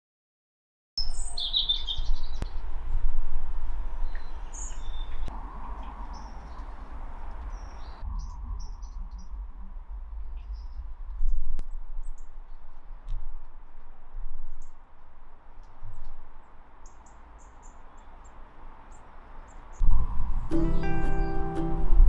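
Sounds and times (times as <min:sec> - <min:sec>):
birds chirping: 0:01.0 - 0:03.1, 0:03.8 - 0:09.3, 0:16.8 - 0:21.9.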